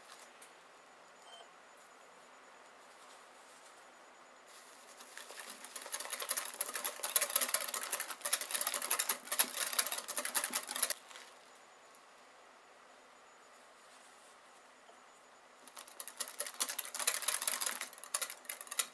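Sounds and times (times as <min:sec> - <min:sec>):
hand whisk beating in a bowl: 0:05.2 - 0:11.0.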